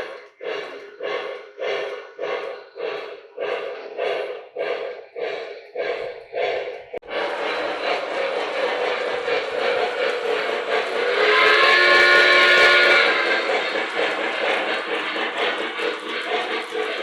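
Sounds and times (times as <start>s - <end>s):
model train chuffing and clicking: 0.0s - 17.0s
steam whistle: 11.0s - 13.3s.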